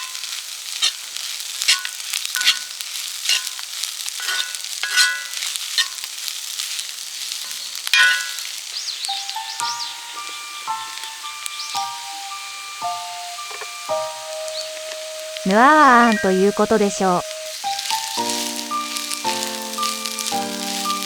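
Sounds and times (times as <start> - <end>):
rice sizzling in a pan: 0.0 - 21.0
metal utensil scraping a pan: 1.6 - 6.1, 7.4 - 8.6.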